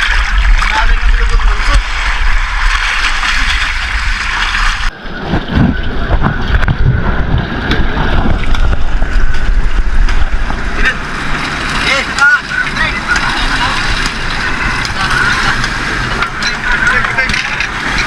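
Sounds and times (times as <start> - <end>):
wind buffeting microphone: 0.0 - 11.8.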